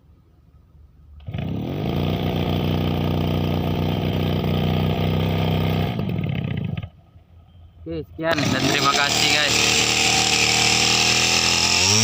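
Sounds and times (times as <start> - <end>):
brush cutter engine running: 1.2 - 7.0, 8.2 - 12.0.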